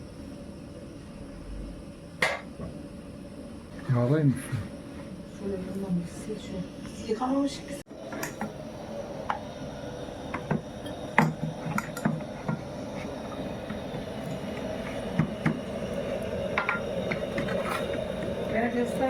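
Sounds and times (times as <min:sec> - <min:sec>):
gas burner rushing: 0:00.0 - 0:19.0.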